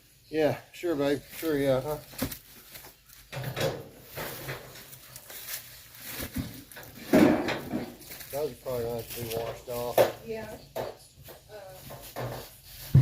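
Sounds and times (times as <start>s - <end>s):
scraping rustling clatter: 1.2s - 13.0s.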